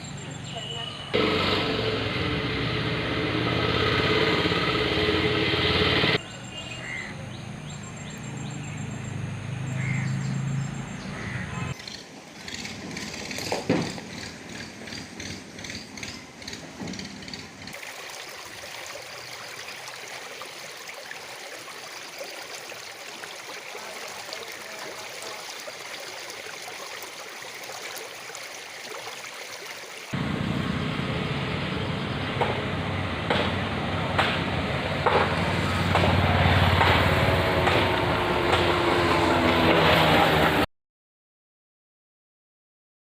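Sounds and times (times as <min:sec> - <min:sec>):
water hissing: 0:17.7 - 0:30.2.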